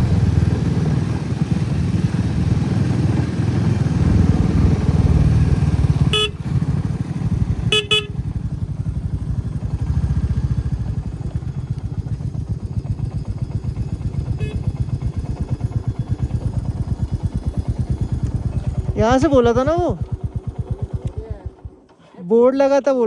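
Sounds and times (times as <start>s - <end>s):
motorcycle engine running: 0.0s - 22.0s
horn beeping: 5.8s - 6.7s, 7.4s - 8.4s, 14.3s - 14.8s.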